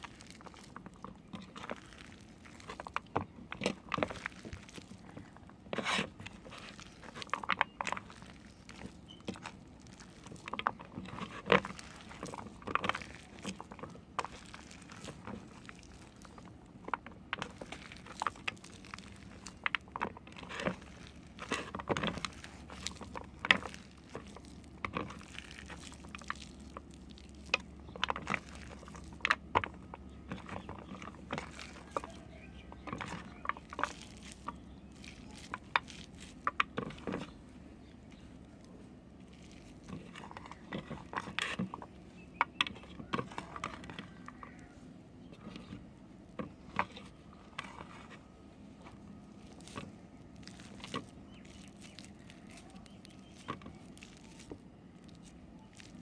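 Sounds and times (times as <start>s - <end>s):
knife carving hard soap: 0.0s - 44.7s.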